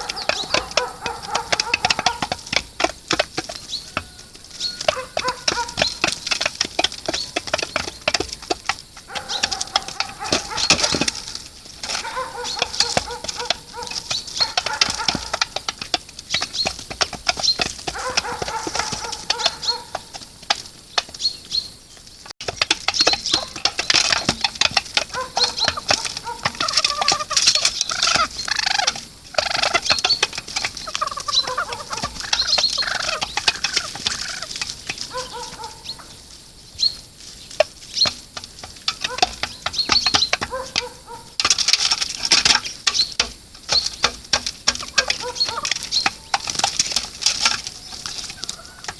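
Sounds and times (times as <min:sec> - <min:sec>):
pecking clicks: 0:00.0 - 0:04.2, 0:04.8 - 0:20.7, 0:22.4 - 0:35.8
wings flapping: 0:00.0 - 0:20.7, 0:22.5 - 0:36.1, 0:38.0 - 0:48.9
pheasants clucking: 0:00.0 - 0:48.9
small birds chirping: 0:00.0 - 0:48.9.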